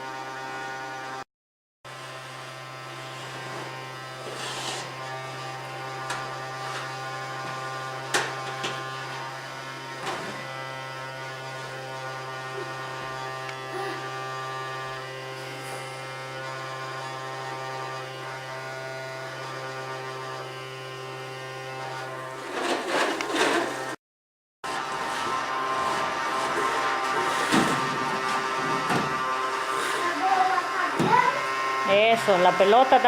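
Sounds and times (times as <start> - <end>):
vacuum cleaner motor humming: 1.9 - 24.0, 24.7 - 33.0
vacuum cleaner bumping objects: 2.8 - 10.6, 22.3 - 24.0, 24.6 - 32.1.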